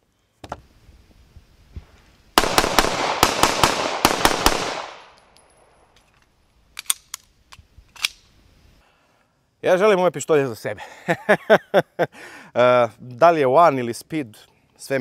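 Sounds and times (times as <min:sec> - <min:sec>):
pistol shots echoing: 0:02.4 - 0:05.7.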